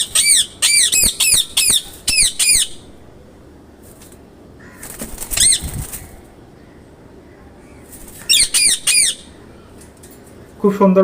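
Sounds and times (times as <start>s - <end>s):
parakeet squawking: 0.0s - 2.9s, 4.6s - 5.9s, 8.1s - 9.4s.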